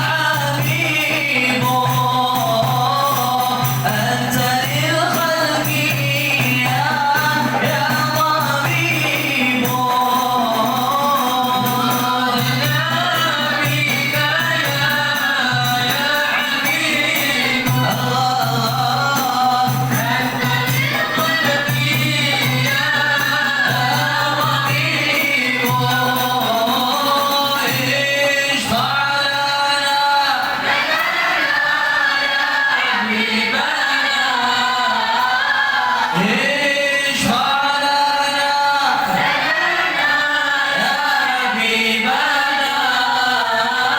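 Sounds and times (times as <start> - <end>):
hand drum: 0.0 - 28.7
group singing in unison: 0.0 - 43.9.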